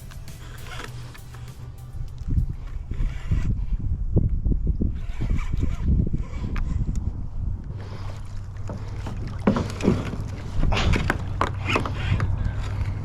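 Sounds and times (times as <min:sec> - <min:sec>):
steady low hum: 0:00.0 - 0:05.0
wind rumbling on microphone: 0:01.6 - 0:13.0
paddle strokes splashing water: 0:07.7 - 0:13.0.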